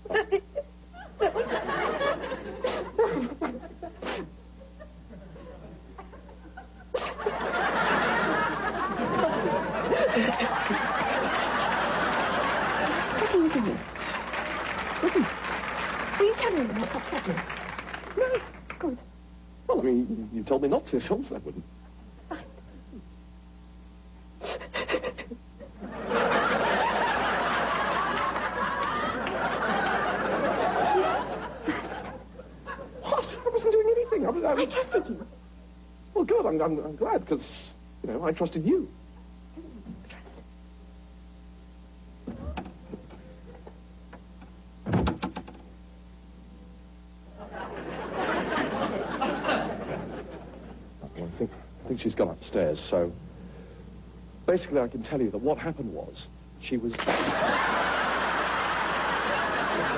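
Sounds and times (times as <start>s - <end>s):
audience laughing: 0.0s - 4.0s, 4.7s - 18.5s, 24.8s - 33.2s, 47.3s - 50.9s, 57.0s - 59.9s.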